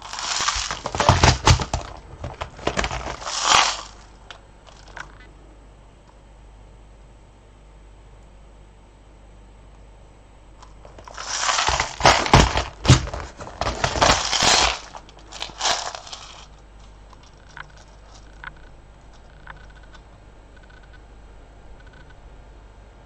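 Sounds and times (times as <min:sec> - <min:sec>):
beads rustling and clicking: 0:00.0 - 0:05.2, 0:10.9 - 0:19.3.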